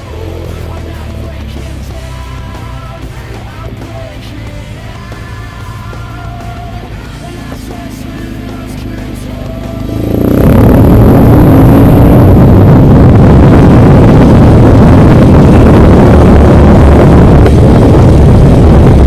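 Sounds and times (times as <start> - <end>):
motorcycle engine running: 0.0 - 19.0
wind noise on microphone: 9.8 - 19.0.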